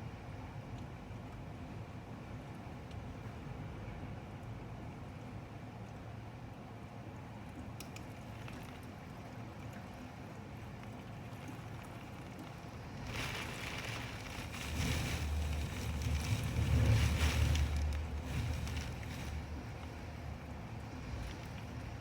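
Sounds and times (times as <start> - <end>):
wind rumbling: 12.8 - 22.0.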